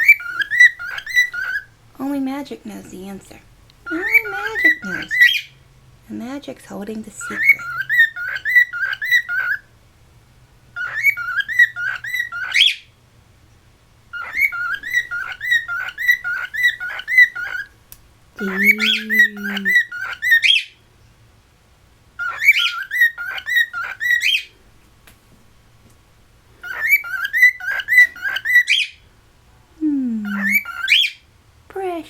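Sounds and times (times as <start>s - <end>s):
cockatiel whistling song: 0.0s - 1.7s, 3.8s - 5.6s, 7.2s - 9.7s, 10.8s - 12.9s, 14.1s - 17.7s, 18.4s - 20.8s, 22.2s - 24.5s, 26.6s - 29.0s, 30.2s - 31.2s.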